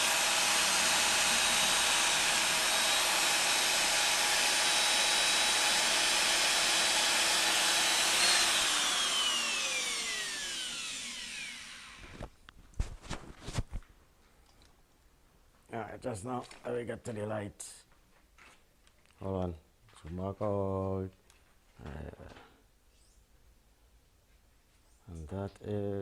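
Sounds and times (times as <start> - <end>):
power tool wire brush running: 0.0 - 12.3.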